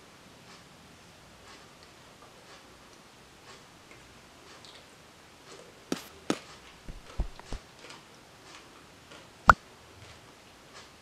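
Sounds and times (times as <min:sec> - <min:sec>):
low dull bumps: 0:06.8 - 0:07.6.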